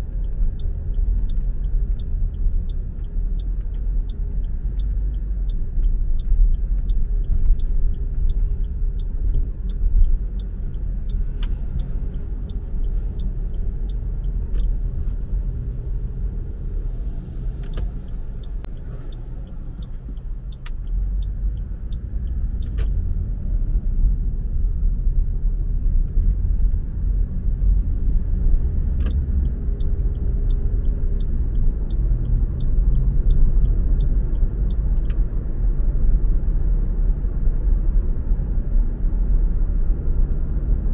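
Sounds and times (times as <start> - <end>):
light regular ticking: 0.0 - 23.4, 26.1 - 36.8
car road and engine rumble: 0.0 - 40.9
sharp clicks: 17.6 - 23.0.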